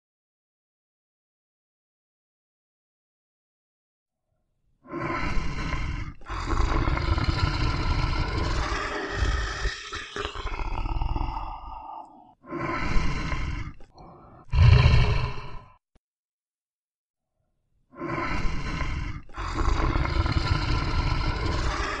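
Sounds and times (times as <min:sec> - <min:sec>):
big cat roaring and growling: 0:05.4 - 0:15.8, 0:18.1 - 0:22.0.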